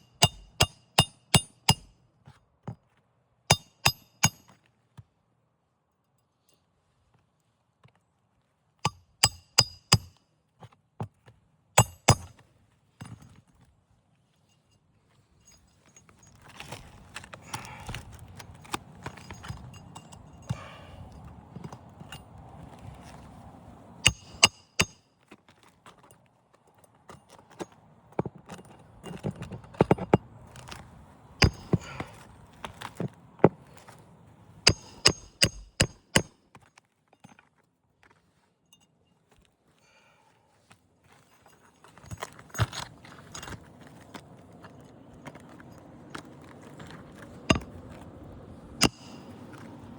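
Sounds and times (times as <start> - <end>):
hammer striking roofing nails: 0.0 - 1.9, 3.5 - 4.4, 8.9 - 10.1, 11.8 - 12.3, 24.0 - 25.0, 31.4 - 32.1, 34.7 - 36.3, 47.5 - 47.8, 48.8 - 49.6.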